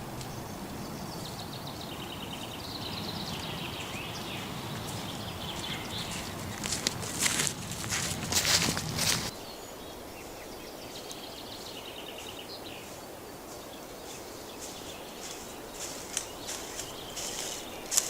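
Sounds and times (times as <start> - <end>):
outdoor hiss: 0.0 - 11.7
soft rustles: 3.8 - 9.3.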